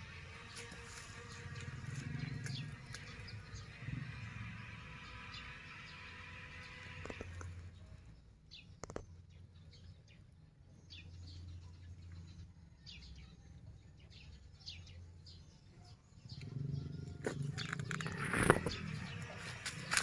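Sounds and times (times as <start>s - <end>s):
small bird chirping: 5.1s - 20.0s.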